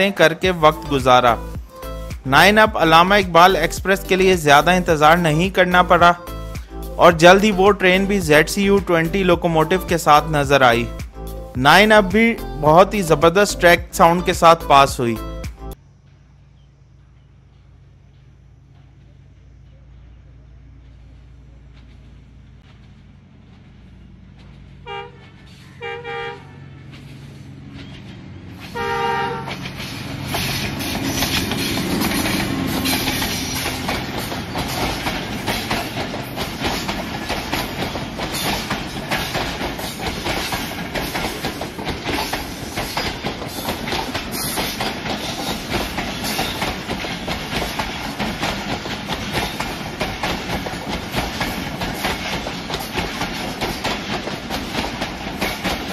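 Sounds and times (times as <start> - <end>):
locomotive engine rumble: 0.0 - 55.9
train horn blasts: 24.8 - 27.4, 28.6 - 29.6
train wheels clattering: 26.8 - 55.9.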